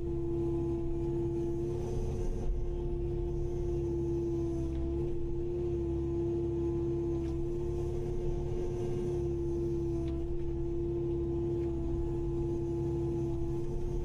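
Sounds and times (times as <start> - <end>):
engine whine: 0.0 - 14.0
excavator diesel rumble: 0.0 - 14.0.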